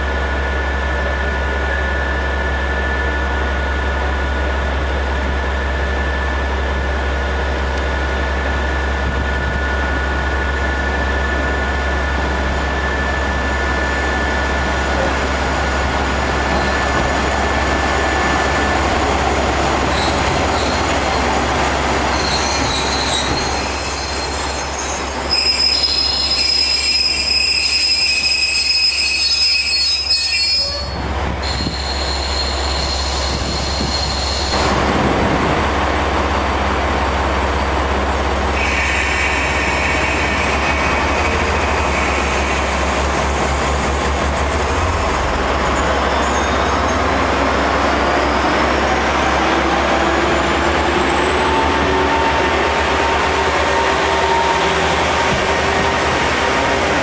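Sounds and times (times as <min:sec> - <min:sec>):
train rumble: 0:00.0 - 0:57.0
train wheels squealing: 0:16.4 - 0:16.9, 0:19.8 - 0:34.6, 0:45.6 - 0:47.2, 0:50.0 - 0:57.0.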